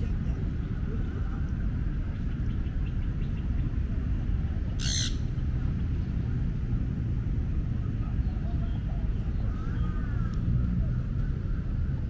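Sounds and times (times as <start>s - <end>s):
steady low rumble: 0.0s - 12.0s
harsh bird call: 4.8s - 5.3s.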